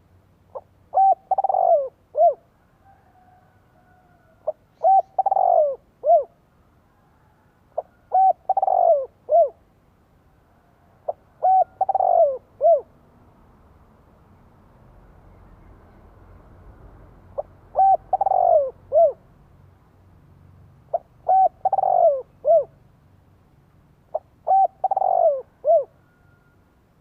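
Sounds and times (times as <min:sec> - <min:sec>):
dove cooing: 0:00.5 - 0:02.5, 0:03.9 - 0:06.4, 0:07.2 - 0:09.6, 0:11.0 - 0:12.9, 0:17.4 - 0:19.2, 0:20.9 - 0:22.8, 0:24.1 - 0:26.6.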